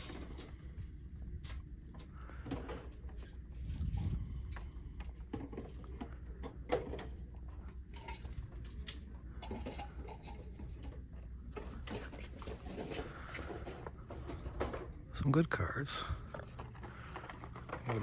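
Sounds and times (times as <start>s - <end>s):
low store hum: 0.0s - 18.0s
plastic packs clicking and rustling: 16.3s - 18.0s.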